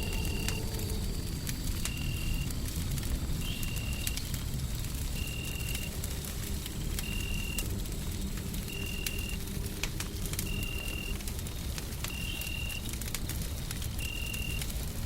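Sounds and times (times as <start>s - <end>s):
low rumble: 0.0s - 3.4s
wood fire crackling: 0.0s - 15.0s.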